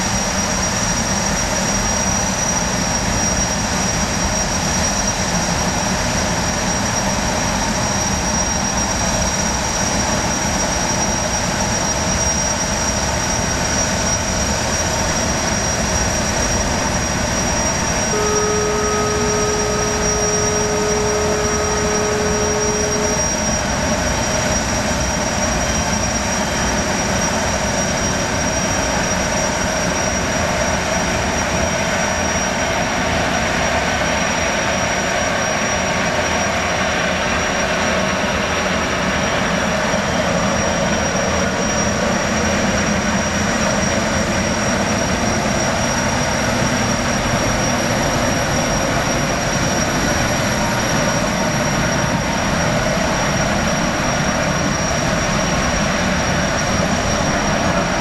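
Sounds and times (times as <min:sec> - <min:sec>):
gas turbines whining: 0:13.0 - 0:29.6
horn blast: 0:17.6 - 0:23.8.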